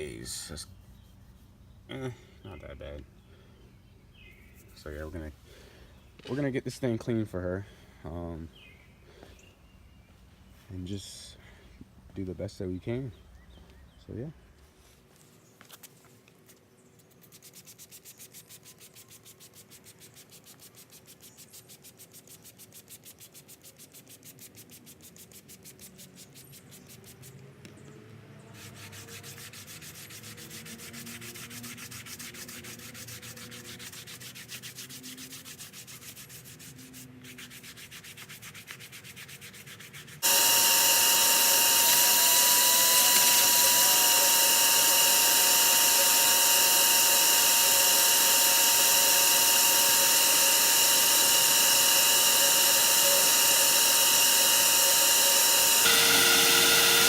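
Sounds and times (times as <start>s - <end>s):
electric motor whining: 40.2s - 57.0s
rhythmic scrubbing: 40.2s - 57.0s.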